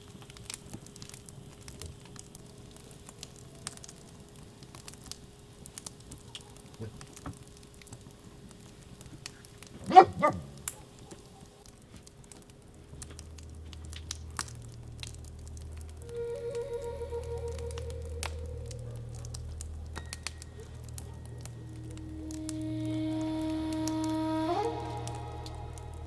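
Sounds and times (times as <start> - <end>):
faint clicks: 0.0 - 26.0
dog barking: 9.8 - 11.6, 20.5 - 21.6.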